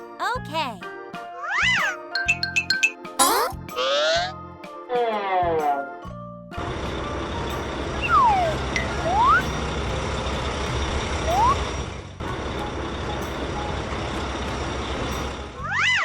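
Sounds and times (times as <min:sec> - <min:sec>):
cartoon truck engine: 0:06.6 - 0:16.0
rising whistle glides: 0:11.3 - 0:11.6.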